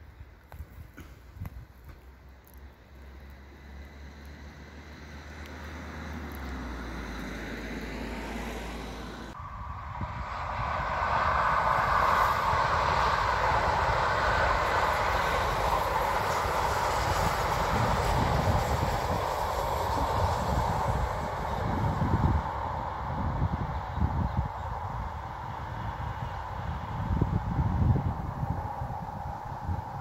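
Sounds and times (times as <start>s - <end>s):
train wheels rushing on rails: 10.0s - 27.5s.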